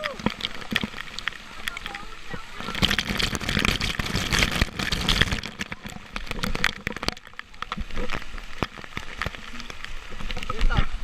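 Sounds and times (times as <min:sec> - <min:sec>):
sharp crackles and pops: 0:00.0 - 0:11.0
waterfall splashing: 0:00.0 - 0:11.0.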